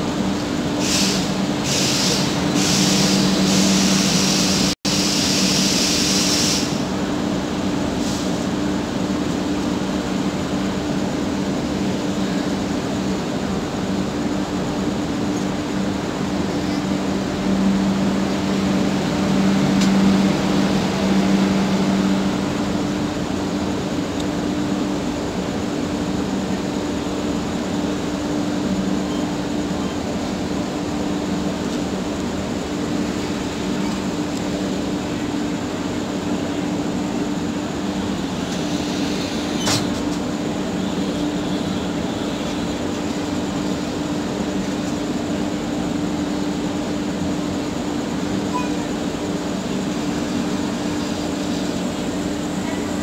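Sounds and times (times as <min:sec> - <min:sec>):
train wheels rumbling on rail: 0:00.0 - 0:53.0
air hissing: 0:00.8 - 0:06.9.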